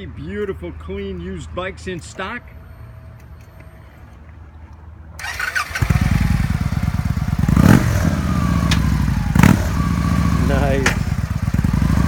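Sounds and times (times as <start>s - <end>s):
motorcycle engine starting and idling: 5.1s - 12.0s.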